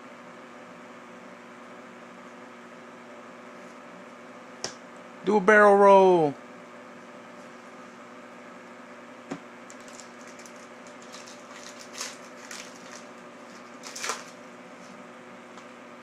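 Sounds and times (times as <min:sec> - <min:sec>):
background hum: 0:00.0 - 0:16.0
wrapper crinkling: 0:09.7 - 0:14.5.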